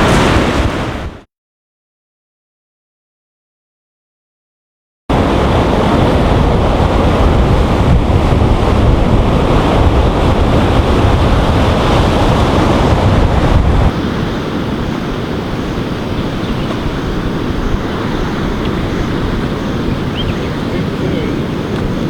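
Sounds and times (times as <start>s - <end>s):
surf washing on shore: 0.0s - 1.3s, 5.1s - 22.0s
wind buffeting microphone: 5.1s - 22.0s.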